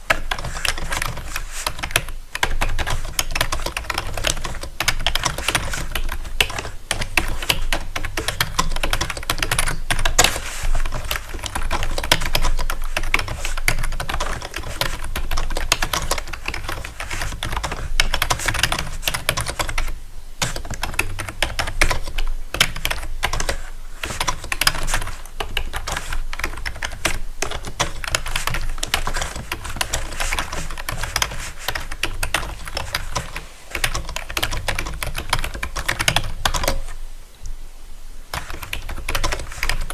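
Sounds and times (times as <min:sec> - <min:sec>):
keyboard typing: 0:00.0 - 0:37.0, 0:38.3 - 0:39.9.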